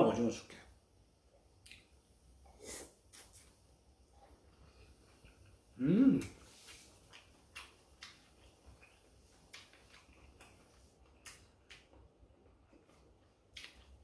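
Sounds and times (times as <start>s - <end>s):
faint mouth chewing clicks: 1.6s - 1.9s, 6.1s - 12.0s.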